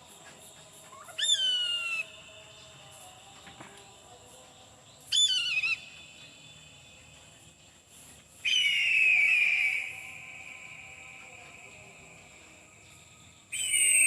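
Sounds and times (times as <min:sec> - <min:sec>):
eagle screaming: 0:01.0 - 0:02.1.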